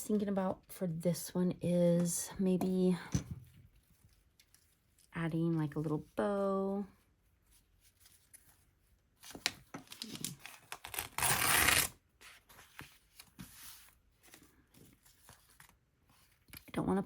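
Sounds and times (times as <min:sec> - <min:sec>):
paper rustling: 0:07.4 - 0:16.7
paper tearing: 0:10.0 - 0:12.0.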